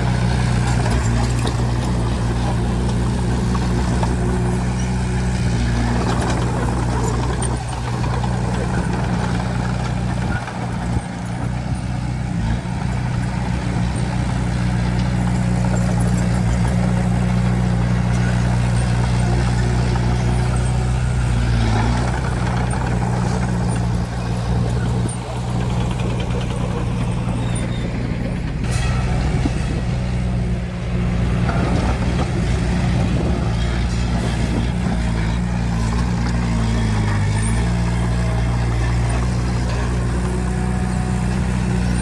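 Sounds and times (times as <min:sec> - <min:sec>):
diesel engine running steadily: 0:00.0 - 0:42.0.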